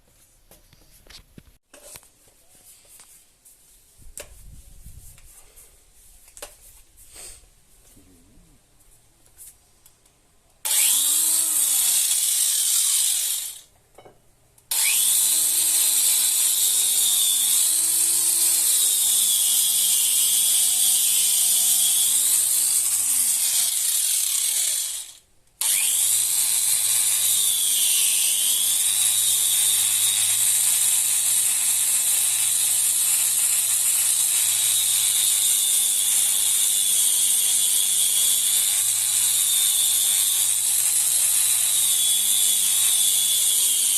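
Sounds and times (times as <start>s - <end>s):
power tool running hard: 10.7s - 13.6s, 14.7s - 43.9s.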